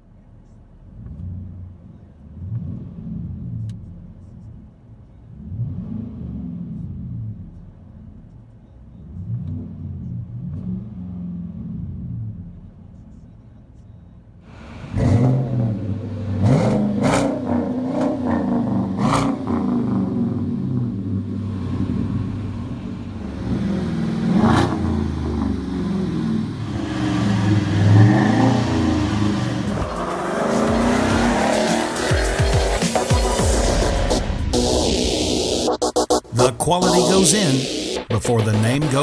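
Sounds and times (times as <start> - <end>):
pickup truck exhaust revving: 14.5 - 35.9.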